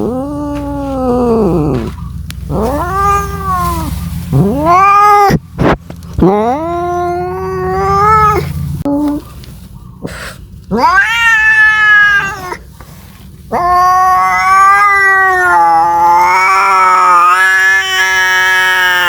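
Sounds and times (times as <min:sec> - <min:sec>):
cat yowling: 0:00.0 - 0:05.4, 0:06.2 - 0:08.5, 0:10.7 - 0:12.6, 0:13.5 - 0:19.0.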